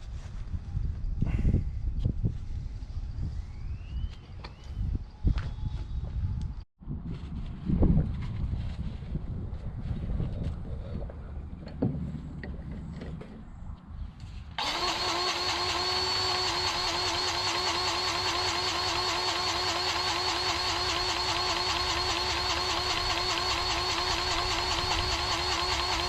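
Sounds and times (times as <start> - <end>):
motor running with regular pulse: 14.6 - 26.0.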